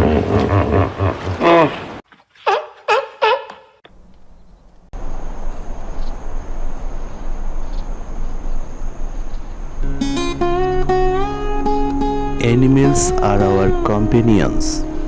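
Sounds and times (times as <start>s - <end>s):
plucked guitar music: 9.8s - 15.0s.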